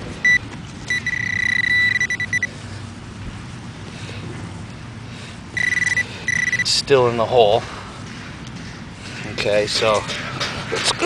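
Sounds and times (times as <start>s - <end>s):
metal detector beeps and tones: 0.2s - 2.5s, 5.6s - 6.8s.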